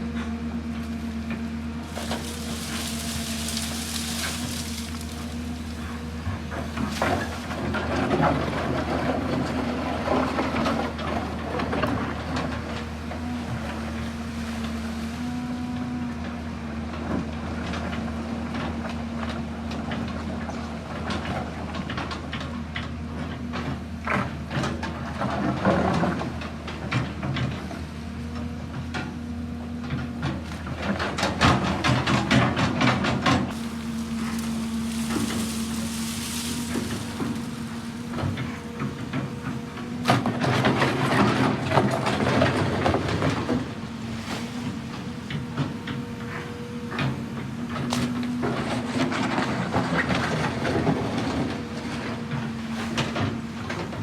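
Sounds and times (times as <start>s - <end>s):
excavator diesel engine running: 0.0s - 54.0s
clattering and scraping: 1.9s - 9.5s, 31.2s - 43.7s.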